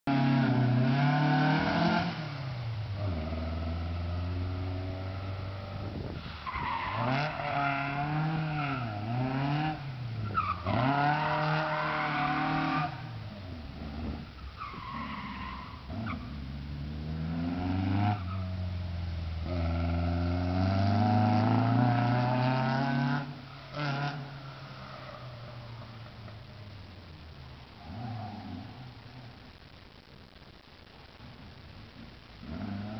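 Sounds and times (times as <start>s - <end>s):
car engine revving: 0.0s - 29.7s.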